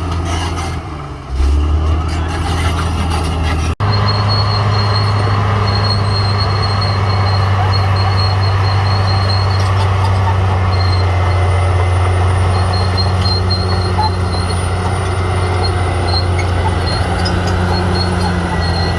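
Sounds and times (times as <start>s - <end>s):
bulldozer diesel engine drone: 0.0s - 18.9s
faint high squeal: 3.9s - 18.9s.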